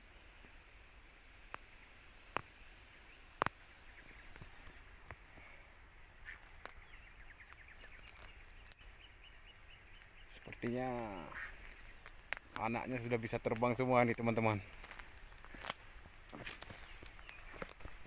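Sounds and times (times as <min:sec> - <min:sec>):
faint outdoor ambience: 0:00.0 - 0:18.0
sharp snaps and clicks: 0:06.4 - 0:08.8, 0:09.9 - 0:18.0.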